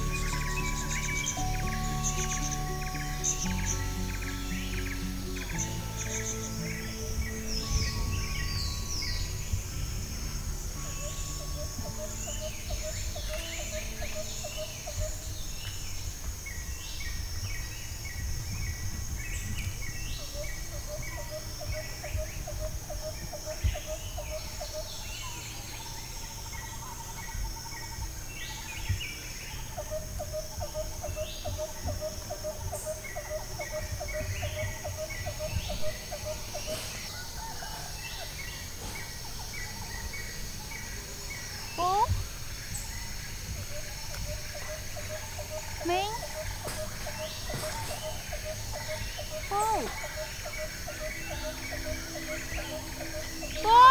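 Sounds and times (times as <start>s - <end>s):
rapid pulsed trill: 0.0s - 15.6s, 39.2s - 53.9s
low rumble: 0.0s - 27.4s
birds chirping and calling: 0.0s - 53.9s.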